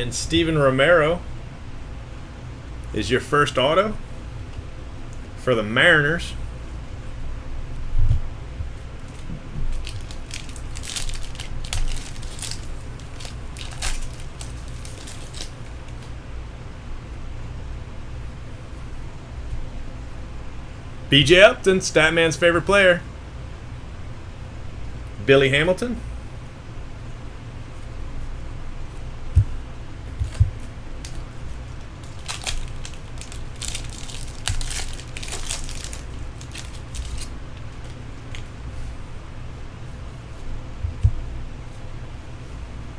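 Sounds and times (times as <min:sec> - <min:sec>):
steady low hum: 0:00.0 - 0:42.9
foil wrappers crinkling: 0:09.0 - 0:16.0, 0:30.2 - 0:38.5
cards rustling: 0:09.0 - 0:16.1, 0:30.1 - 0:38.5.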